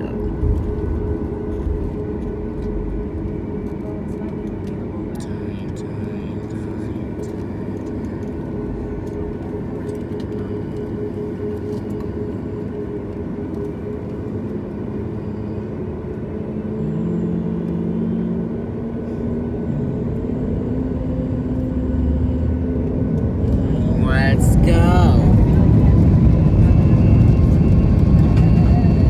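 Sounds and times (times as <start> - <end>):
jet engines rumbling: 18.4 - 29.0.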